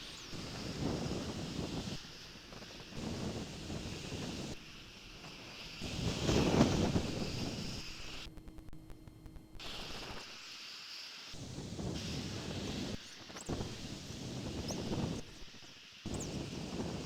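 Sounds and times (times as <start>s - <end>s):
wind gusting over microphone: 0.3s - 4.6s, 5.8s - 8.2s, 11.4s - 15.3s.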